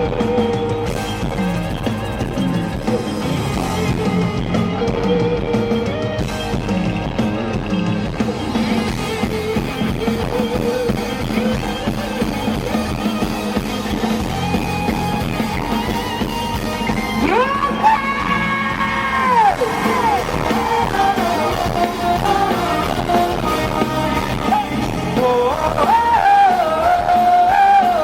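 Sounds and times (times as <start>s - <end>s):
rock band playing: 0.0s - 28.0s
person yelling: 17.1s - 21.6s.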